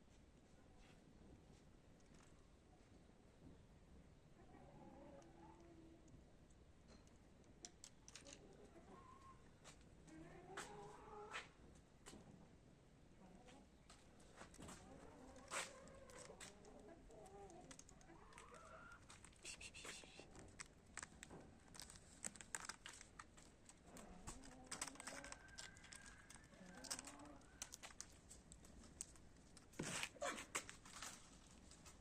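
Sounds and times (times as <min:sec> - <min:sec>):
rustling: 0:14.0 - 0:32.0.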